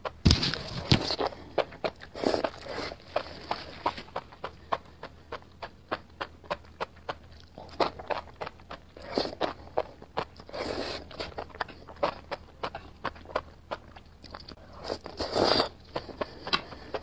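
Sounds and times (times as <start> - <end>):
crunchy wet chewing: 0.0 - 17.0
slurping: 0.6 - 5.0, 10.4 - 12.2, 14.8 - 17.0.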